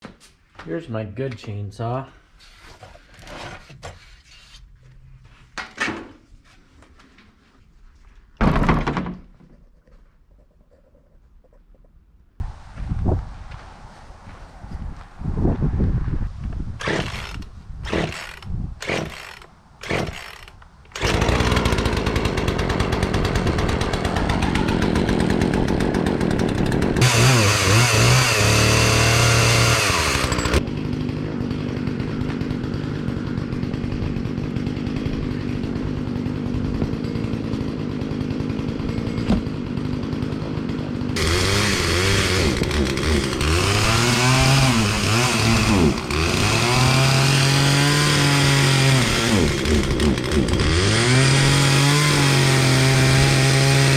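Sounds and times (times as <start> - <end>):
chainsaw engine running and revving: 16.8 - 53.9.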